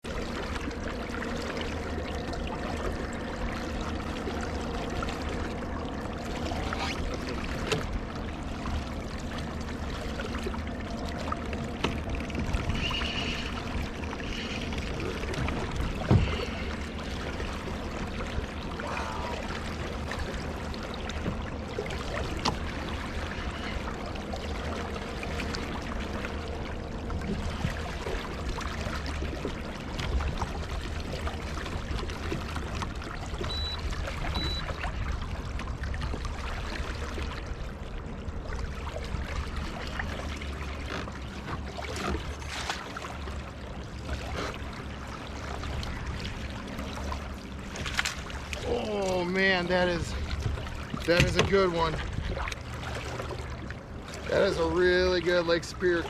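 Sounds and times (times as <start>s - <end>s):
background water rush: 0.0s - 56.0s
water sloshing against hull: 0.0s - 56.0s
small knocks on hull: 15.4s - 16.4s, 22.4s - 22.7s, 50.4s - 52.6s.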